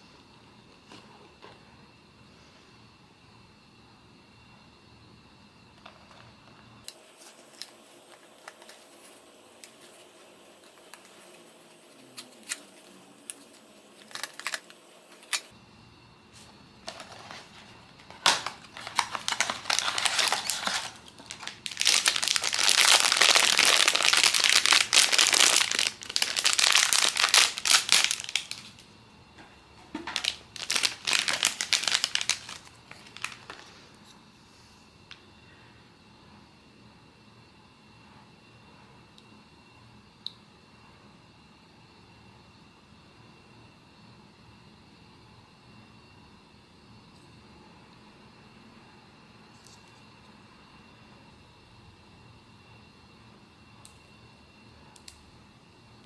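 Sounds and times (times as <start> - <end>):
packaging crinkling: 12.1 - 15.5, 16.8 - 28.9, 29.9 - 33.8.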